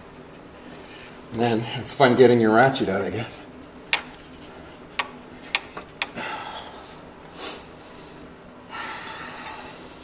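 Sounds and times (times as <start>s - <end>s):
person breathing: 6.0s - 10.0s.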